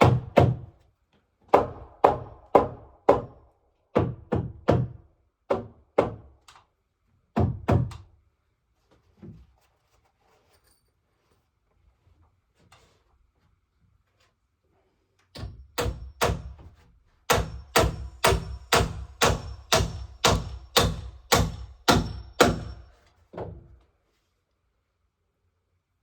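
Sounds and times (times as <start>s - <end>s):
hammer blows with metallic ring: 15.4s - 16.6s, 17.3s - 23.1s.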